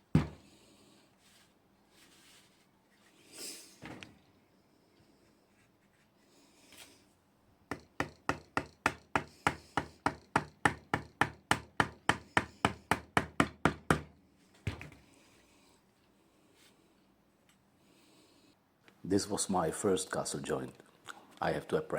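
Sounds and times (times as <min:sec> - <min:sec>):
wood knocking: 0:00.0 - 0:00.4.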